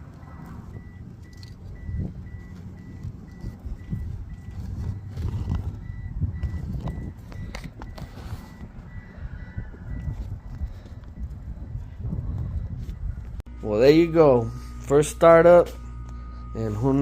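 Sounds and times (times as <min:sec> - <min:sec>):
engine running unevenly: 0:00.0 - 0:17.0
high electronic beep: 0:00.2 - 0:11.8.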